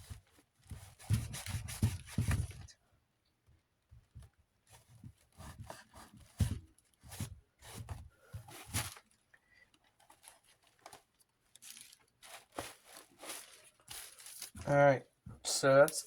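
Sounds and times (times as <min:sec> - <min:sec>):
paper towel rubbing on plastic: 0:00.0 - 0:02.7, 0:12.2 - 0:14.8.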